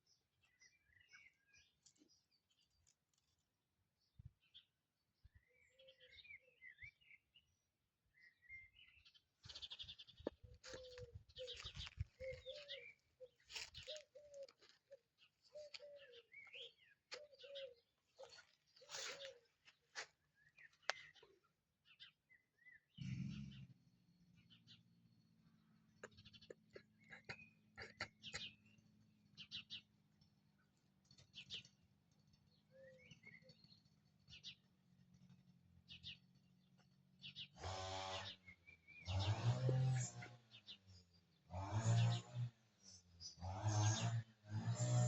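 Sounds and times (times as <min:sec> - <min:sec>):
small birds chirping and whistling: 0:08.2 - 0:14.6, 0:32.6 - 0:34.7, 0:37.2 - 0:41.0
low cooing bird notes: 0:10.4 - 0:19.6.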